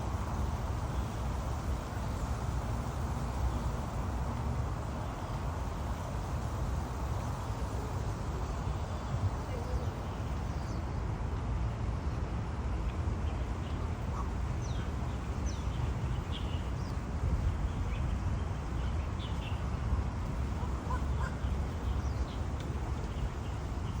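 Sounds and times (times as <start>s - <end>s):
birds chirping: 13.7s - 24.0s.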